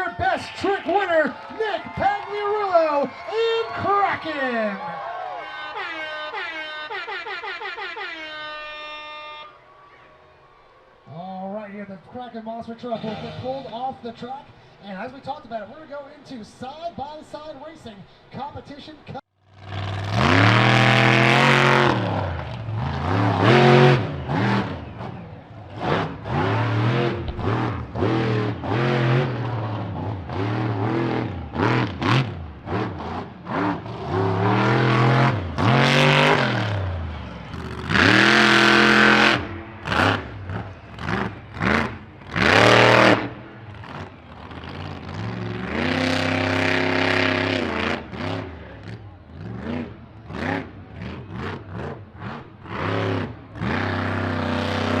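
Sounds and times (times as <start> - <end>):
monster truck engines revving: 12.6 - 14.3, 19.4 - 55.0.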